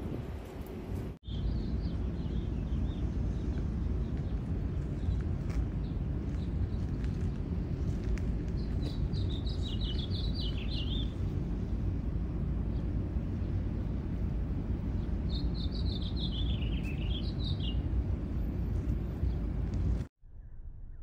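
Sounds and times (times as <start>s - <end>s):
steady low rumble: 0.0s - 21.0s
songbird singing: 1.2s - 7.0s, 7.8s - 11.8s, 14.8s - 19.6s.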